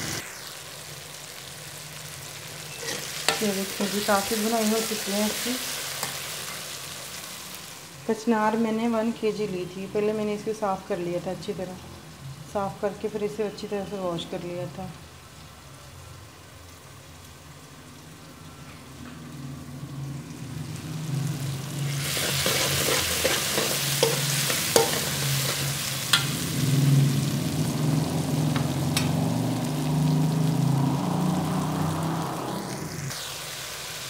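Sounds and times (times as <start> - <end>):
masala sizzling in hot oil: 0.0 - 34.0
utensil clicking on pan: 22.2 - 26.3.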